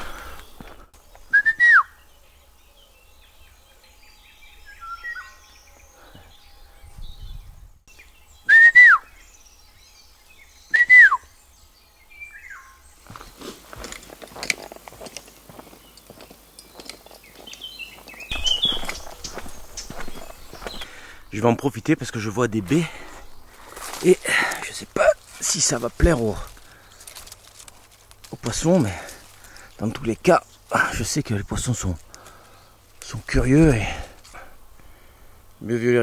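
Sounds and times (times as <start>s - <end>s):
footsteps on dirt path: 0.0s - 1.4s, 12.8s - 35.0s
bird calling: 0.0s - 13.5s, 15.6s - 36.0s
soft bird chirps: 0.3s - 13.5s, 15.6s - 27.8s.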